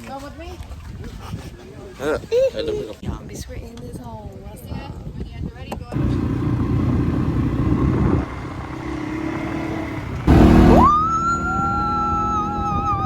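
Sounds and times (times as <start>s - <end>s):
off-road vehicle engine rumbling: 5.9s - 13.0s
loud burst: 10.3s - 11.1s
high rising tone: 10.3s - 13.0s
lower held tone: 10.3s - 13.0s.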